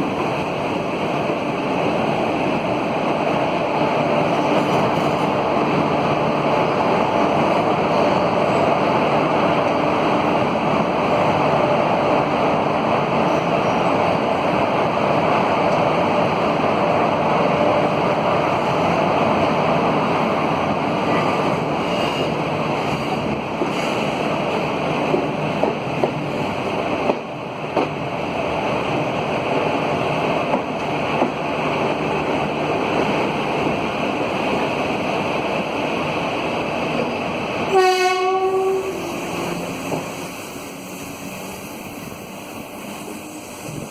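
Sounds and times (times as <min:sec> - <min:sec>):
passenger train on rails: 0:00.0 - 0:43.9
locomotive horn: 0:37.7 - 0:39.4.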